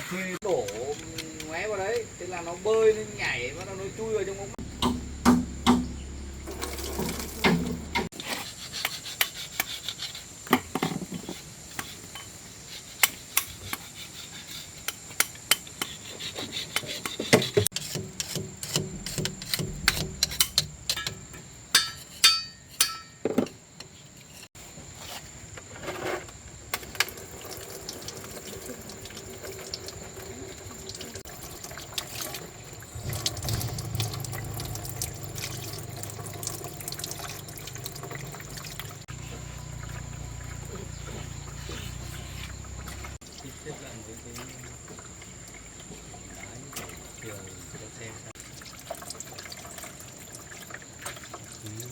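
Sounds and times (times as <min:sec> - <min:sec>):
struck metal ringing: 0:04.6 - 0:06.5, 0:18.0 - 0:23.3
metal tools clinking: 0:18.8 - 0:23.5
water splashing: 0:27.8 - 0:47.6.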